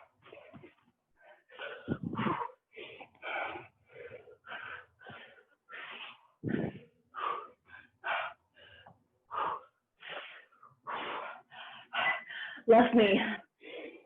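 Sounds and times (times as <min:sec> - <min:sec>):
person breathing hard: 0:00.0 - 0:12.7, 0:13.5 - 0:14.0.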